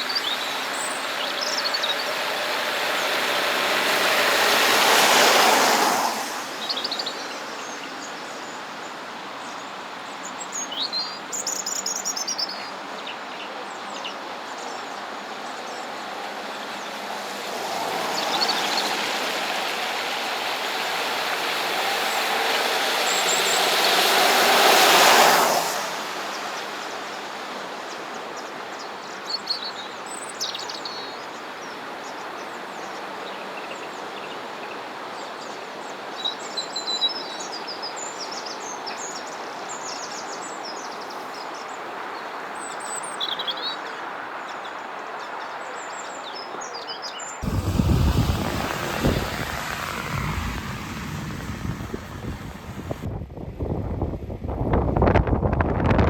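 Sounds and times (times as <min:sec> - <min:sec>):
road traffic passing: 0:00.3 - 0:06.7, 0:16.1 - 0:26.5, 0:47.4 - 0:53.1.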